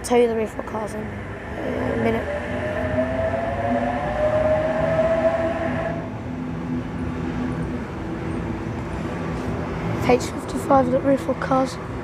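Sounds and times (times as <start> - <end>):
low hum: 0.0 - 12.0
steady train rumble: 0.0 - 12.0
electric train motors whining: 1.1 - 9.2.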